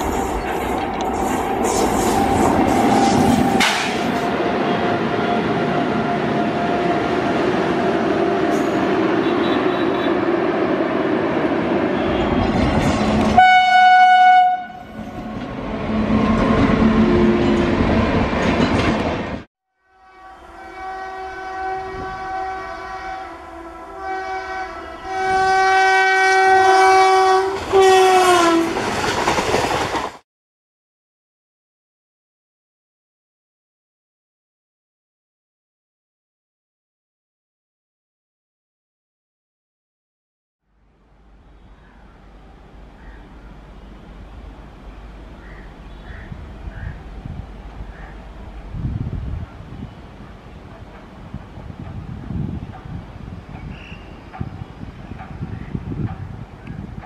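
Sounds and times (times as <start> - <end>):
train wheels rumbling and clattering: 0.0 - 4.5, 12.2 - 13.4, 15.0 - 19.5, 27.5 - 30.2, 44.2 - 57.0
locomotive horn blasts: 8.6 - 10.4, 11.9 - 15.4, 19.7 - 28.8.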